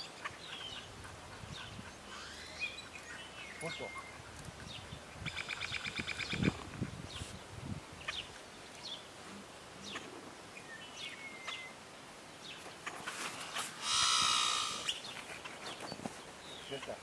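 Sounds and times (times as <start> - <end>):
bird trill: 2.1 - 4.2, 13.8 - 15.2
bird whistle: 13.8 - 15.0.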